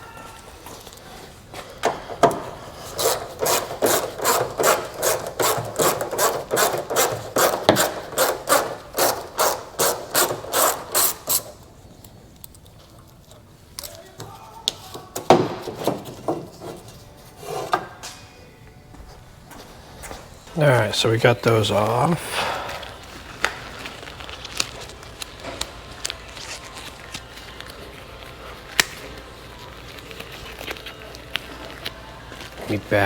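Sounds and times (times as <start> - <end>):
hand ratchet clicking: 3.0 - 11.5.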